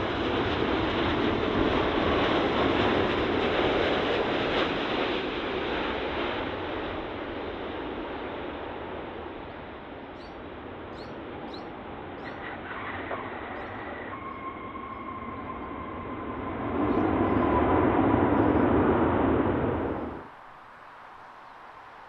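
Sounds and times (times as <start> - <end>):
jet airliner engines roaring: 0.0 - 22.0
high fan whine: 9.3 - 22.0
faint bird chirps: 10.2 - 18.8.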